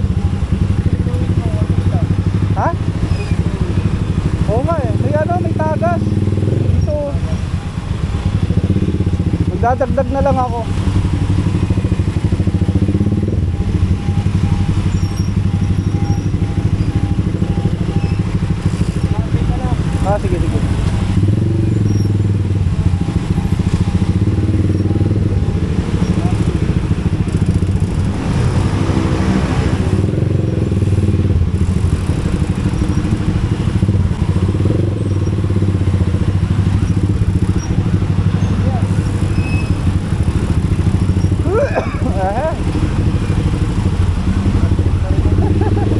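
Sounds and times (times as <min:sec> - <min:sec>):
motorcycle engine running: 0:00.0 - 0:45.9
faint high beep: 0:11.2 - 0:20.7.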